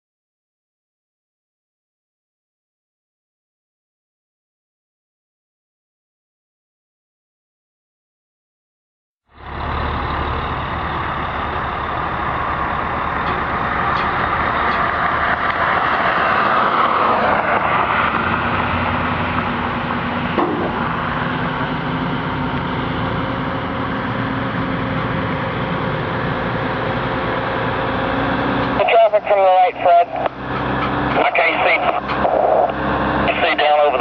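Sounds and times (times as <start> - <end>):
vehicle engine and road noise: 9.3 - 34.0.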